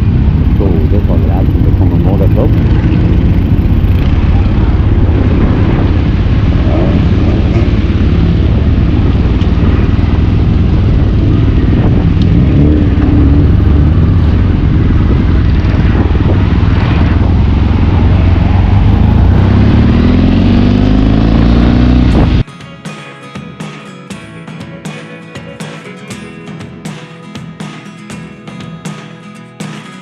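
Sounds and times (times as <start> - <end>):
motorcycle engine accelerating: 0.0 - 22.5.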